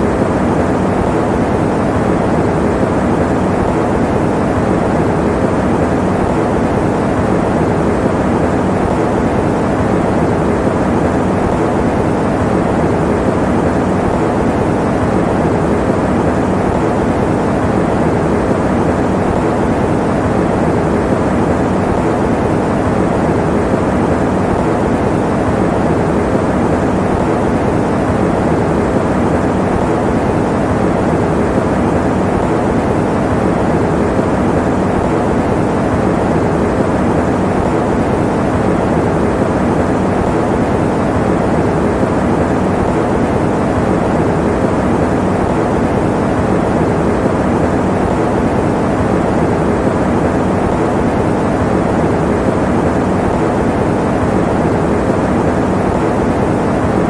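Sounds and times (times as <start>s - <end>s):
electric fan running: 0.0s - 57.0s.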